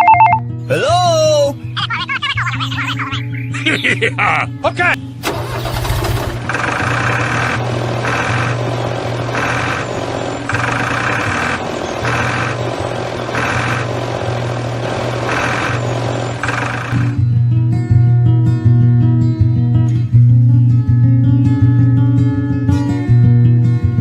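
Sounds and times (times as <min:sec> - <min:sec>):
small engine pulsing: 0:05.2 - 0:17.2.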